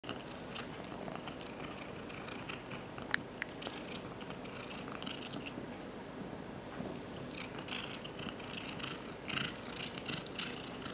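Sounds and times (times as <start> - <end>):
cat chewing: 0.1 - 5.6
cat purring: 0.1 - 6.4, 7.0 - 10.9.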